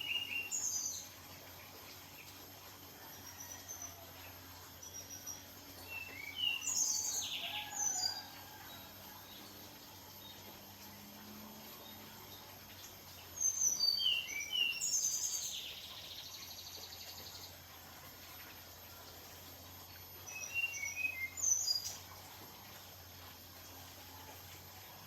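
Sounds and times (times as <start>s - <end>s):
bird chirping and twittering: 0.0s - 1.2s, 4.9s - 8.2s, 13.3s - 17.5s
faint steady hum: 0.0s - 25.0s.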